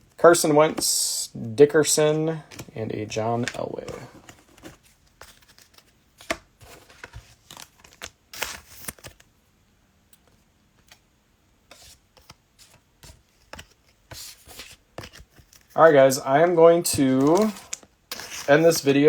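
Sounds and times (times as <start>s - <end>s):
cards clicking and sliding: 3.4s - 9.2s, 11.7s - 19.0s
plastic wrapper crinkling: 15.4s - 19.0s.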